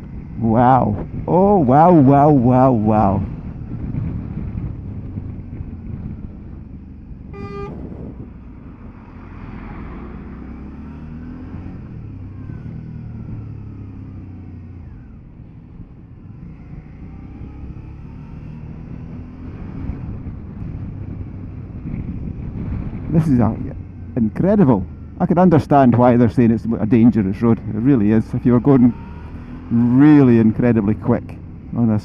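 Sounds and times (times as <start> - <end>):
wind noise: 0.0 - 13.4, 18.6 - 32.0
motorcycle engine running: 0.0 - 32.0
short horn toot: 7.3 - 8.0.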